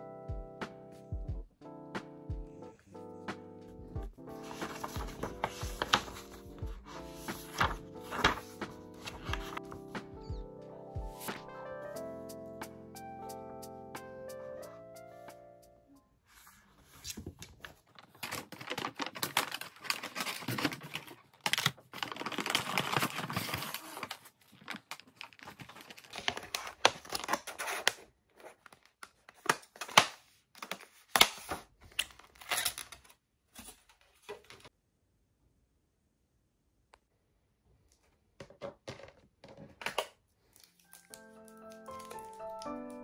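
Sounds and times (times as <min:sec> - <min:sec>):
packaging crinkling and tearing: 0:04.4 - 0:09.7, 0:17.2 - 0:33.1, 0:39.9 - 0:43.0.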